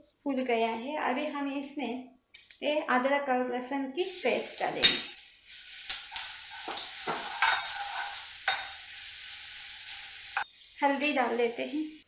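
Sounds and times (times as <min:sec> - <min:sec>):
paste sizzling in hot oil: 0:04.0 - 0:12.0
steel spoon scraping pan: 0:05.9 - 0:10.5.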